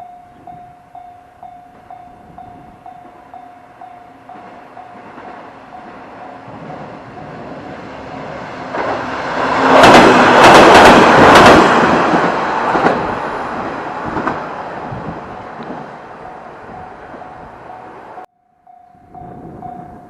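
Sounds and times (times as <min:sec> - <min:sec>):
crossing warning bell ringing: 0:00.0 - 0:10.1, 0:14.8 - 0:20.0
diesel railcars wheels clacking: 0:00.2 - 0:18.3.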